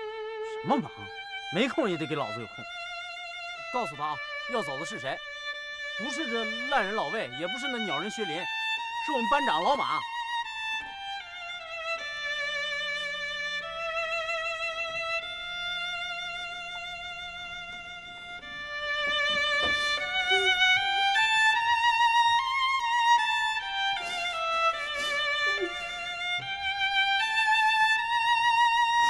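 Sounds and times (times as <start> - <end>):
bowed string melody: 0.0 - 29.0.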